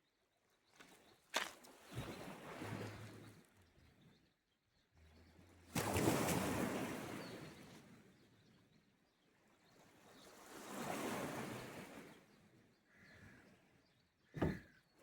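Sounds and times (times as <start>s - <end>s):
sea waves breaking on shore: 5.8s - 7.4s, 10.4s - 12.2s.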